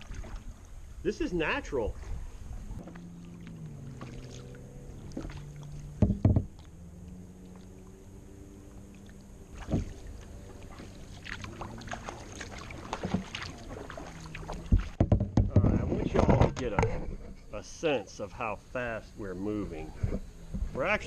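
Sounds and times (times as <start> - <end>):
small boat motor humming: 2.0 - 21.0
loud knocks: 6.0 - 6.5, 14.7 - 16.9.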